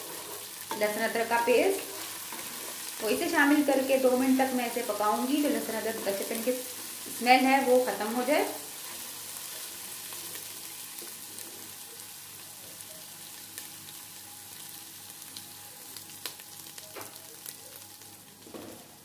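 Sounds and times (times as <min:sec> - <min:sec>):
wooden spoon stirring in pot: 0:00.0 - 0:07.6
onions sizzling in hot oil: 0:00.0 - 0:19.0.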